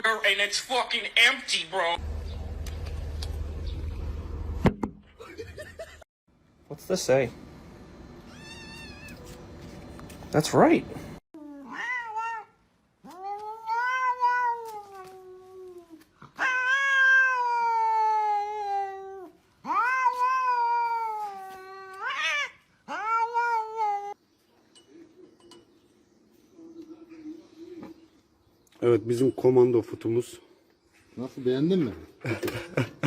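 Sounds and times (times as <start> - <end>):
cat meowing: 8.3 - 9.3, 11.4 - 24.2.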